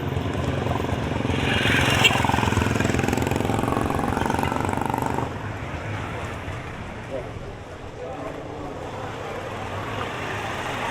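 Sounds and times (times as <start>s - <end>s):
vehicle engine running close by: 0.0s - 6.3s
street traffic: 0.0s - 10.9s.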